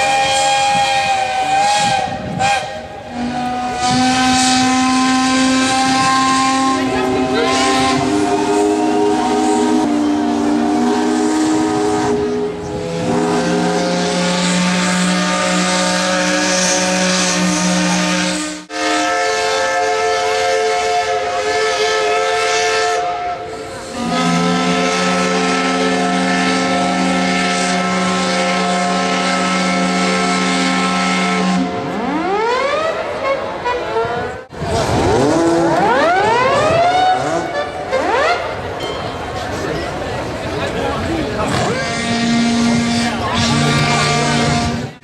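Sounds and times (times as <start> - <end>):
steam whistles blowing in a chord: 0.0 - 31.9.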